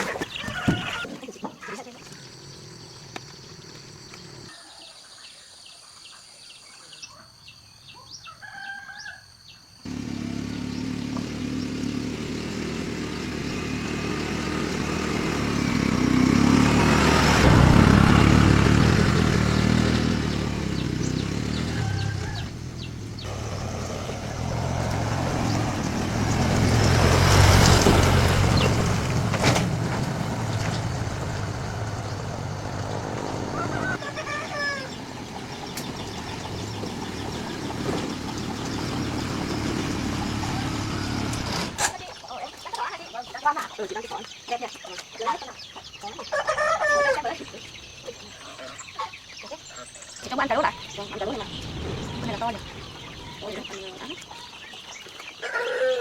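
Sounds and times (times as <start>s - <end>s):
chickens clucking: 0.0s - 2.2s, 41.8s - 56.0s
vehicle engine running loudly: 9.9s - 41.9s.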